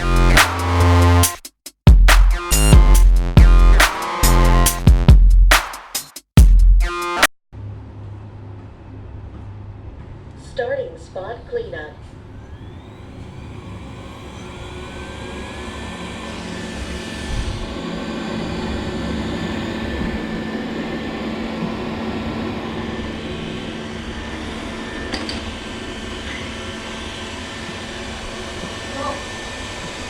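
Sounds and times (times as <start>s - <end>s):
robot vacuum cleaner whirring: 12.1s - 30.0s.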